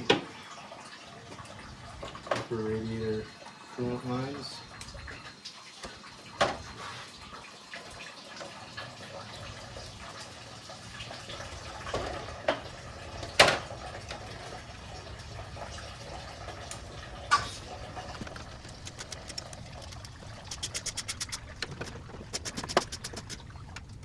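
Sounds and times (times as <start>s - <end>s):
coolant trickling and dripping: 0.0s - 24.0s
sharp clicks on hoses: 18.2s - 24.0s.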